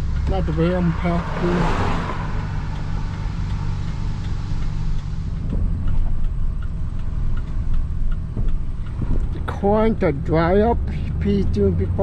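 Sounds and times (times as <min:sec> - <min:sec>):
vehicle engine running: 0:00.0 - 0:12.0
light ticks and knocks: 0:02.7 - 0:11.0.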